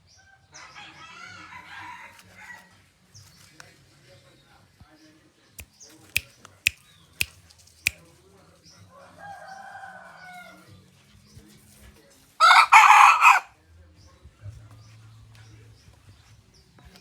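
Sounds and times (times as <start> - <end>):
rooster crowing: 12.4 - 13.5.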